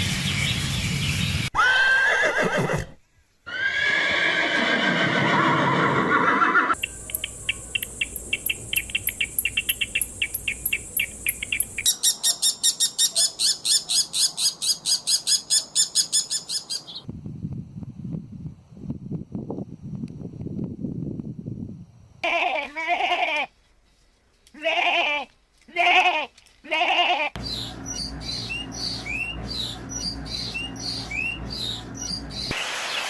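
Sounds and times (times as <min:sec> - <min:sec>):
descending animal calls: 0:01.6 - 0:02.9, 0:03.5 - 0:11.9
rapid high-pitched chirping: 0:06.8 - 0:12.9.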